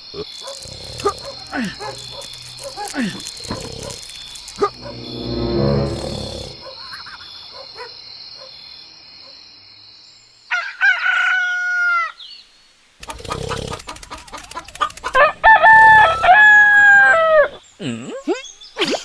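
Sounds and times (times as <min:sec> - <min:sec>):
person snoring: 0:00.4 - 0:02.3, 0:05.5 - 0:06.6
rooster crowing: 0:10.5 - 0:12.2, 0:15.2 - 0:17.5.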